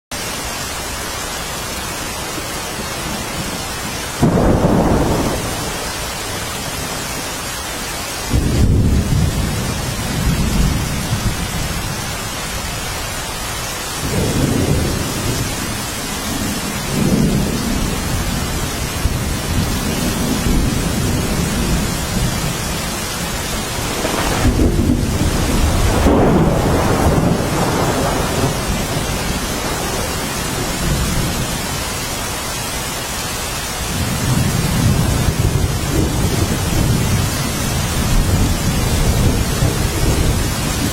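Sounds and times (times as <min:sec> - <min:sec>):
steady rain falling: 0:00.1 - 0:40.9
thunder rumbling: 0:02.7 - 0:07.4, 0:08.3 - 0:13.0, 0:14.0 - 0:31.8.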